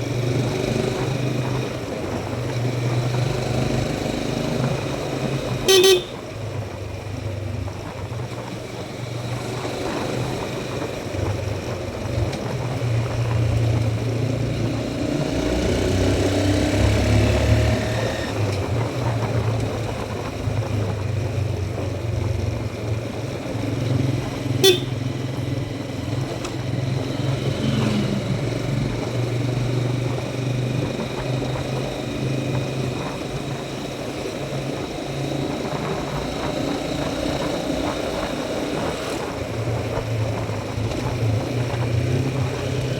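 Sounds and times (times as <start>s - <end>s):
motorcycle engine running: 0.0s - 42.9s
motorcycle horn toots: 5.6s - 6.3s, 24.6s - 25.2s.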